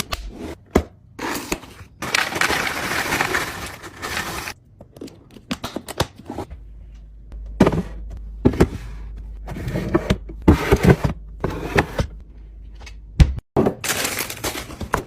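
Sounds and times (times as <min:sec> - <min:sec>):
packaging rustling: 0:02.0 - 0:04.6, 0:13.8 - 0:15.0.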